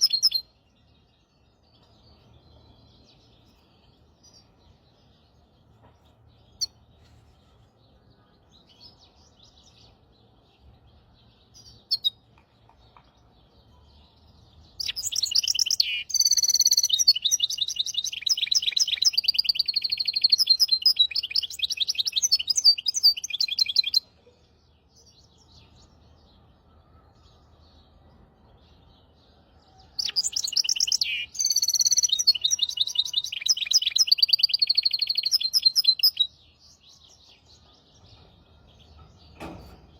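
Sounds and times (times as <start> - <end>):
soft bird chirps: 0.0 - 39.9
finch trilling song: 14.6 - 24.2, 30.0 - 36.4.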